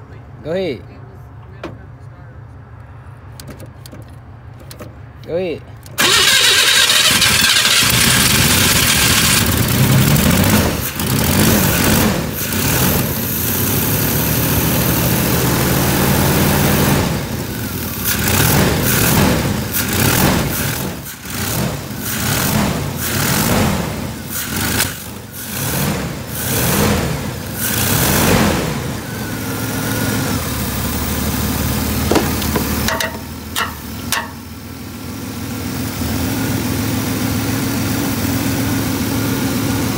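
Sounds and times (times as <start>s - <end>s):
pickup truck engine revving: 6.0s - 34.2s.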